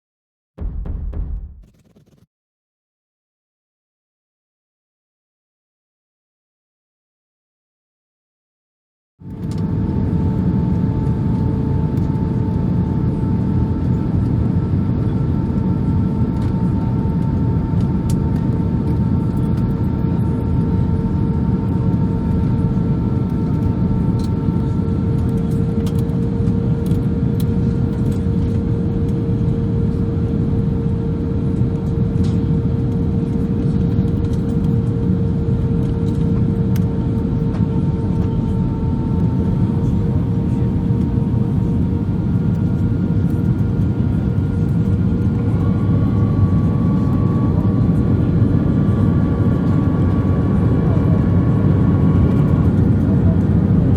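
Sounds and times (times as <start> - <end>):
airliner cabin rumble: 37.0 - 53.9
steady tonal hum: 38.4 - 43.3.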